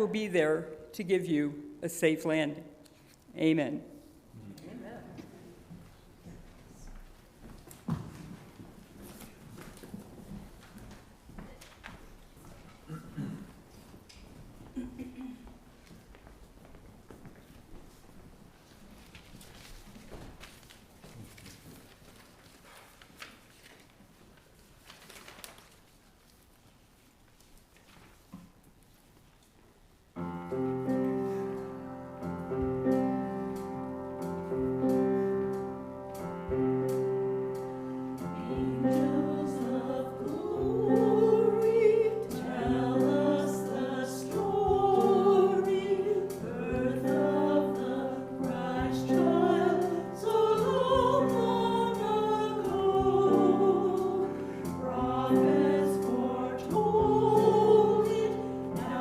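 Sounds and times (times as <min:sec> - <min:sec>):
held instrumental chords: 0:30.2 - 0:59.0
group of voices singing: 0:38.2 - 0:59.0.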